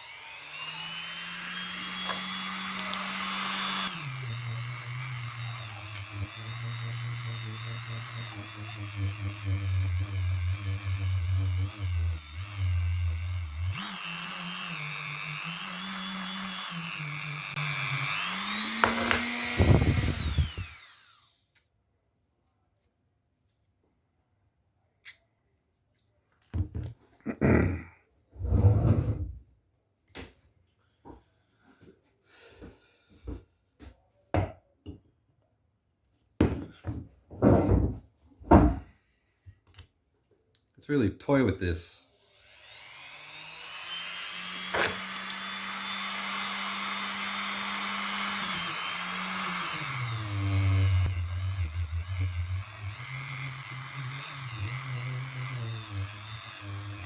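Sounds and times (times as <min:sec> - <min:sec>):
rotary tool whine: 0:00.0 - 0:21.4, 0:42.2 - 0:57.0
objects knocking and clunking: 0:18.6 - 0:20.5, 0:26.4 - 0:27.1, 0:36.4 - 0:38.9.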